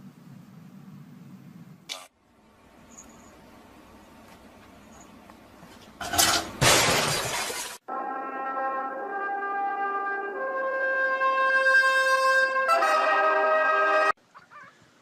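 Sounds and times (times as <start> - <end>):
loud crash of something breaking: 6.6 - 7.8.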